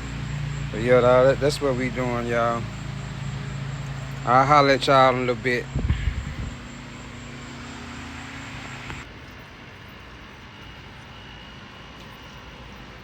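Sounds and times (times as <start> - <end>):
machine hum: 0.0 - 9.1.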